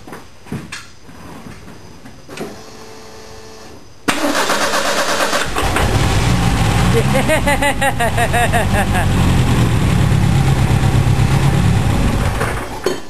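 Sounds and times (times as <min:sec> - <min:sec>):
car engine cranking and starting: 0:04.1 - 0:13.0.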